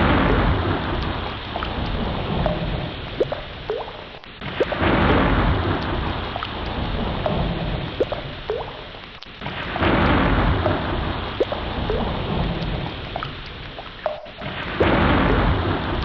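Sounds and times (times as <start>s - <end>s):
surging ocean water: 0.0s - 16.0s.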